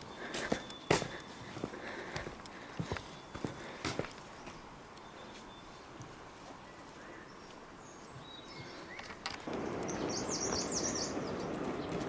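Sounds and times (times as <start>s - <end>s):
faint bird chirps: 0.0s - 1.6s, 3.0s - 6.0s, 6.6s - 11.5s.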